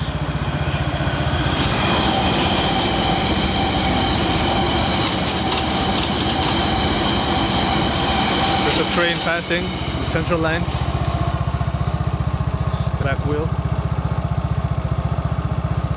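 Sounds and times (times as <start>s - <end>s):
electric train passing: 0.0s - 12.3s
scooter engine idling: 0.0s - 15.9s.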